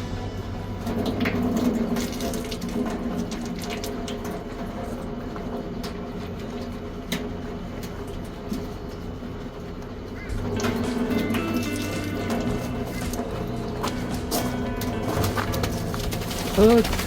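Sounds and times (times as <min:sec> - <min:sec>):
low hum: 0:00.0 - 0:05.6, 0:08.5 - 0:17.0
running water splashing: 0:15.1 - 0:17.0.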